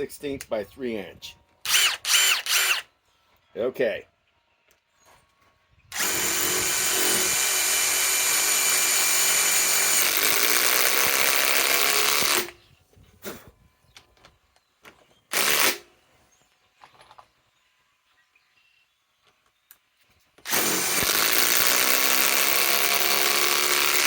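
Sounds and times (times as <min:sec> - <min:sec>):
impact wrench driving screw into wood: 0:05.9 - 0:12.6, 0:15.3 - 0:15.9, 0:20.4 - 0:24.0.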